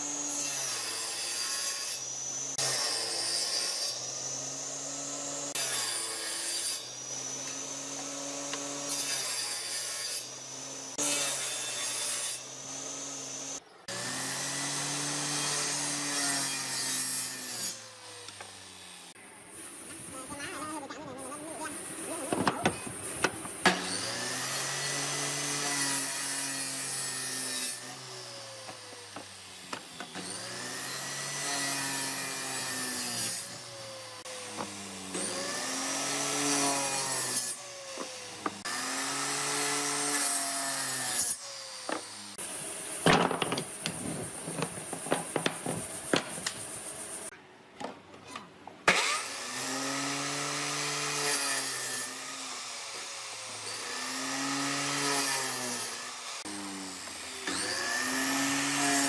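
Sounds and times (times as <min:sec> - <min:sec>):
power tool cutting wood: 0:00.0 - 0:47.4, 0:48.3 - 0:59.0
sharp knocks: 0:43.0 - 0:46.6.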